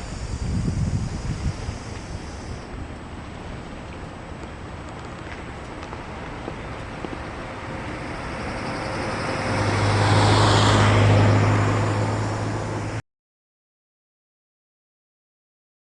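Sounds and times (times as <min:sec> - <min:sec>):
tyre hiss: 0:00.0 - 0:02.7
vehicle engine hum: 0:00.0 - 0:13.0.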